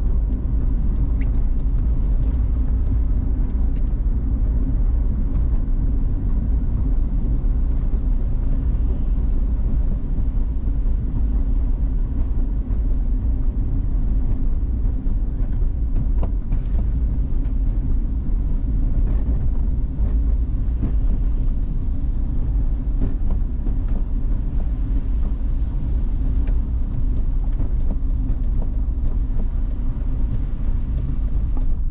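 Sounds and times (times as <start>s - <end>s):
faint ticks: 0.0s - 4.0s, 25.9s - 31.9s
car engine and road rumble: 0.0s - 31.9s.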